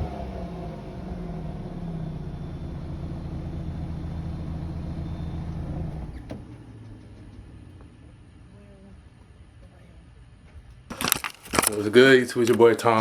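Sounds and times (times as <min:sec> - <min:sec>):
car engine running: 0:00.0 - 0:09.5.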